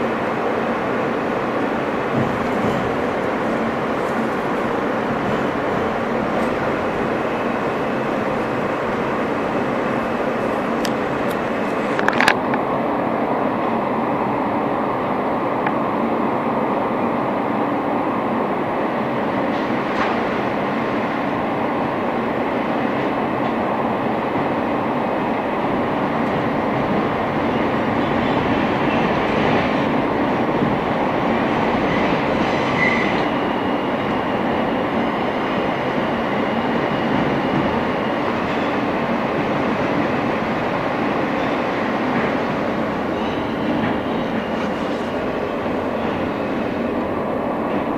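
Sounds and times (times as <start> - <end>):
subway car wheels rumbling: 0.0 - 47.9
high wheel squeal: 31.8 - 34.3, 42.9 - 46.6.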